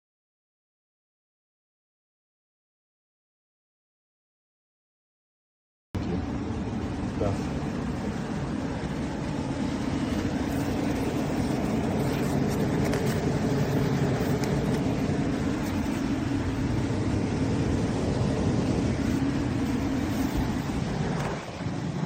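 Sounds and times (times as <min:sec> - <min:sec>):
portable air conditioner running: 0:06.0 - 0:22.0.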